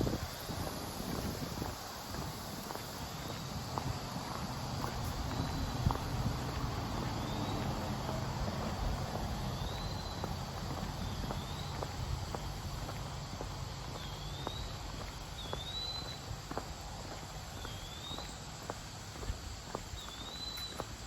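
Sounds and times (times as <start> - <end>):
steady low rumble: 0.0 - 15.4
footsteps on a trail: 0.0 - 21.0
bird whistling: 15.4 - 16.3, 20.0 - 20.8.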